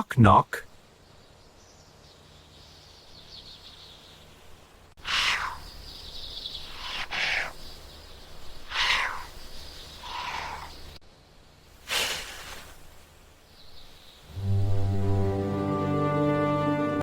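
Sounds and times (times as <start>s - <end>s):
faint high bird chirping: 0.9s - 11.0s, 13.4s - 14.4s
bird harsh falling cry: 5.0s - 5.7s, 8.6s - 9.4s, 10.0s - 10.9s.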